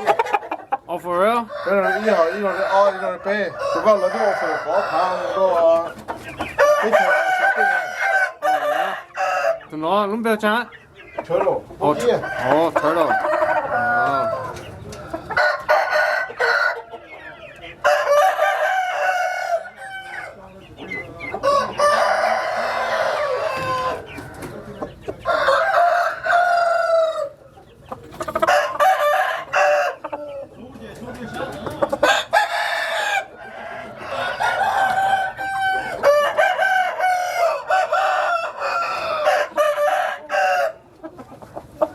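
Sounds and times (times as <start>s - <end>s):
roosters crowing: 0.0s - 10.1s, 11.3s - 41.9s
chickens clucking: 0.0s - 41.9s.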